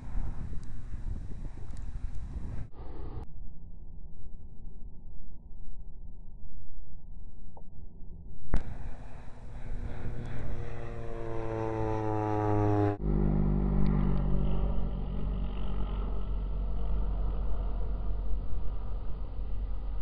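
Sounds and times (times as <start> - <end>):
airplane engine and propeller: 0.0 - 3.2, 8.5 - 20.0
low engine drone: 0.0 - 6.3, 6.9 - 20.0.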